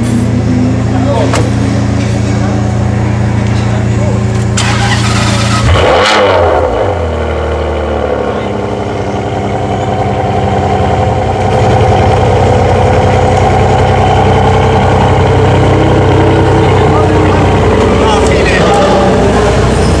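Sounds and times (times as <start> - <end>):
car engine revving and idling: 0.0 - 20.0.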